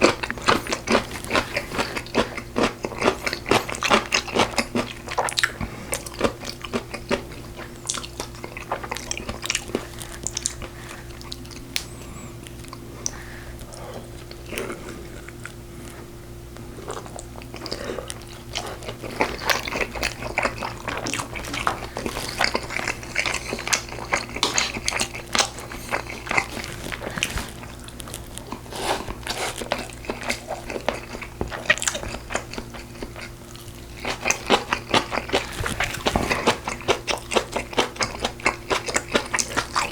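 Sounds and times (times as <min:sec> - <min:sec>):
crunchy bites: 0:00.0 - 0:04.8, 0:18.8 - 0:30.8, 0:33.6 - 0:38.2
wet chewing and biting: 0:00.0 - 0:11.9, 0:16.8 - 0:39.9
steady low hum: 0:00.0 - 0:38.5.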